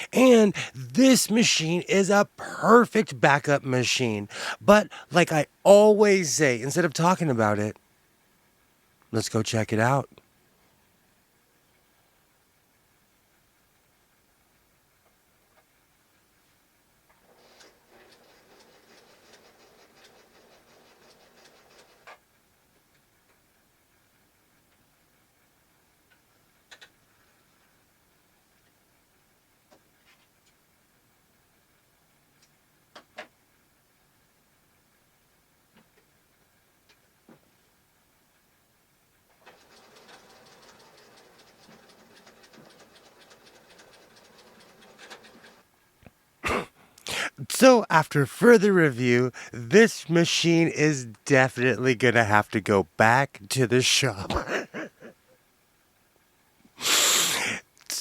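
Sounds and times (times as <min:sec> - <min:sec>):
sewing machine whirring and ticking: 0:17.1 - 0:23.0, 0:39.3 - 0:45.7.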